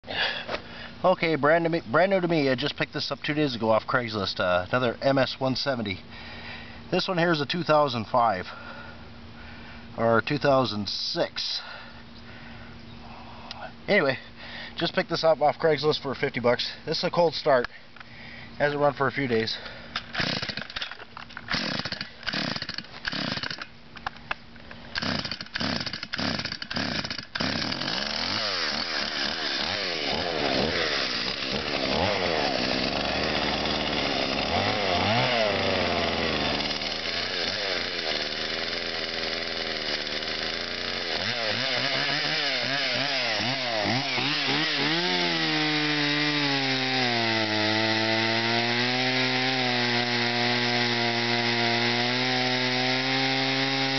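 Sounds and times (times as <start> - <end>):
chainsaw engine starting and idling: 19.5 - 23.7, 24.9 - 53.9.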